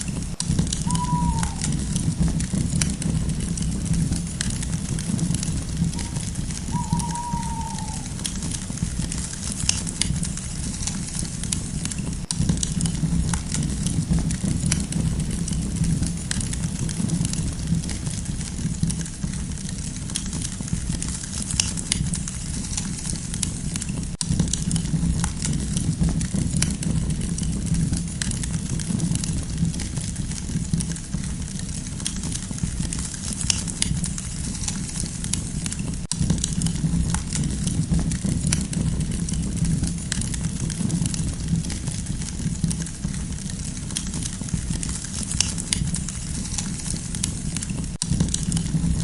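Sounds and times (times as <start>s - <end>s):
campfire crackling and popping: 0.0s - 49.0s
low rumble of flames: 0.0s - 49.0s.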